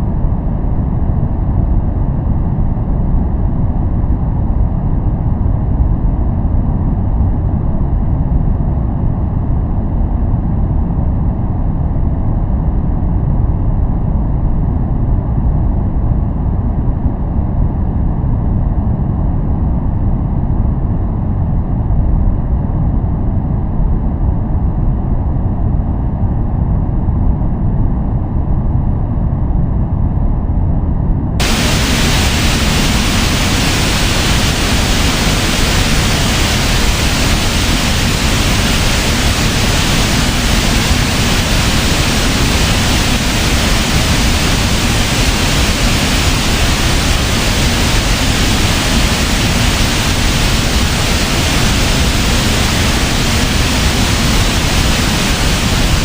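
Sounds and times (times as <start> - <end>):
white noise hiss: 0.0 - 0.5, 31.4 - 56.0
deep muffled noise: 31.4 - 56.0.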